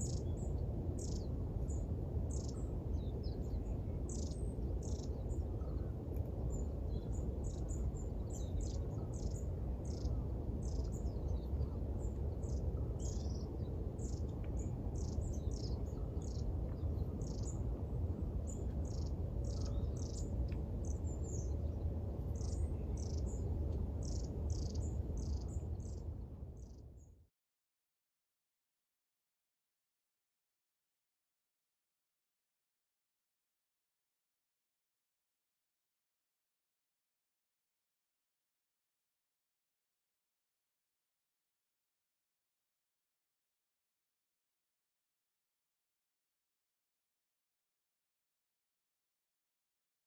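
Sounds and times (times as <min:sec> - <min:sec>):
birds chirping: 0:00.0 - 0:26.9
low background rumble: 0:00.0 - 0:27.2.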